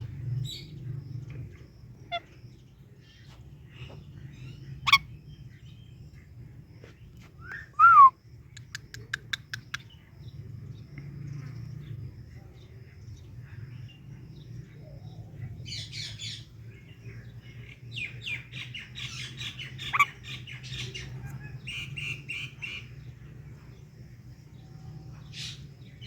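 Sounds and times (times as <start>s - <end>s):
parrot calls: 4.8s - 5.1s
clicking chirps: 8.5s - 9.9s.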